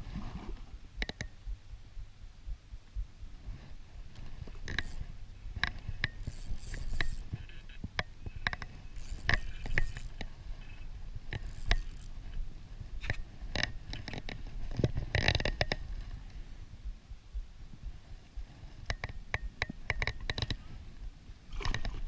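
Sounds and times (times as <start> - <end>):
steady low rumble: 0.0 - 19.9, 20.5 - 22.0
fishing gear clicks and knocks: 4.1 - 12.2, 18.9 - 20.6, 21.5 - 22.0.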